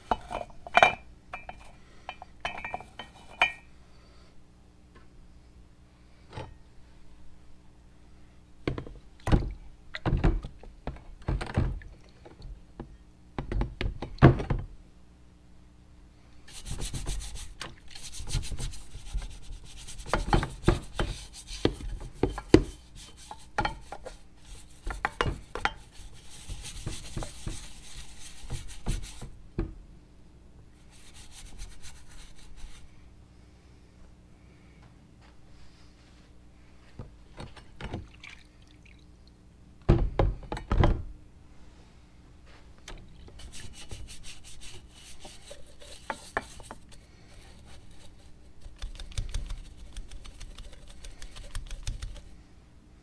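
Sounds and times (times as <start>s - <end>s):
rubbing or scraping metal: 43.4s - 48.8s.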